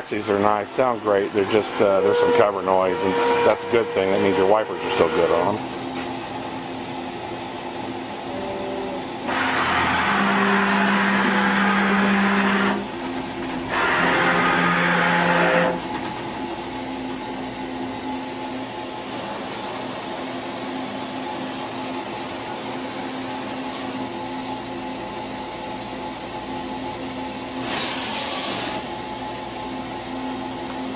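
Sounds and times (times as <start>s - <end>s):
machine steady hum: 0.0s - 27.7s
servo motor whine: 1.4s - 5.5s.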